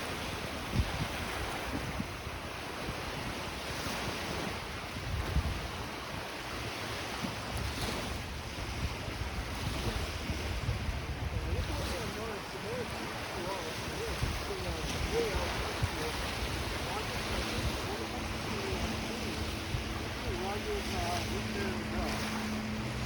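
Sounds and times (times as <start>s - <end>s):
small lake waves breaking: 0.0s - 23.0s
wind buffeting microphone: 0.0s - 23.0s.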